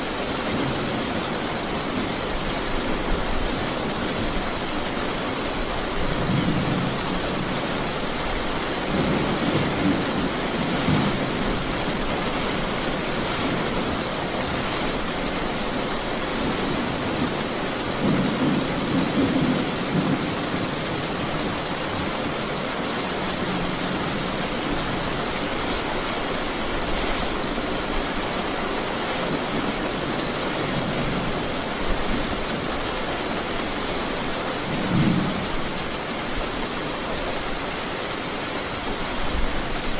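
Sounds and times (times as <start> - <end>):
heavy rain hissing: 0.0 - 39.9
thunder rumbling: 16.4 - 22.3.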